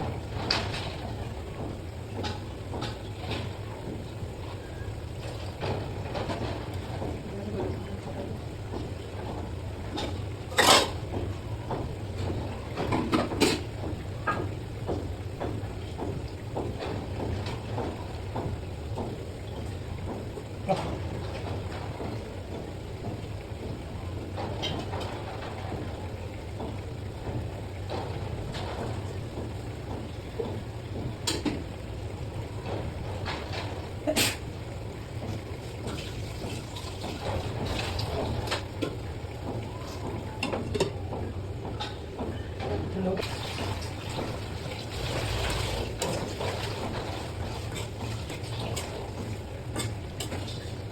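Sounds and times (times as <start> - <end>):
metal utensils clattering on cookware: 10.0 - 11.0, 12.8 - 13.7, 47.7 - 50.8.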